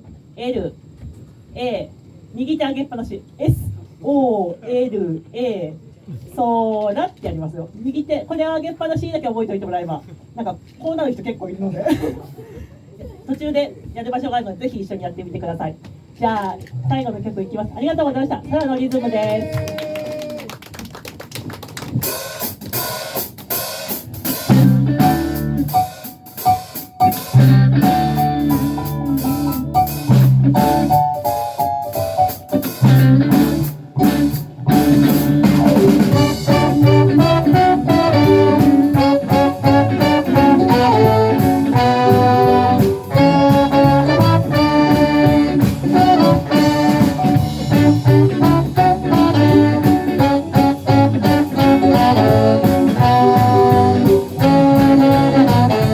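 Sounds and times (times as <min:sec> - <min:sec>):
live band playing groove: 0:21.3 - 0:55.9
drum kit beat: 0:21.8 - 0:55.9
bass guitar: 0:24.1 - 0:55.9.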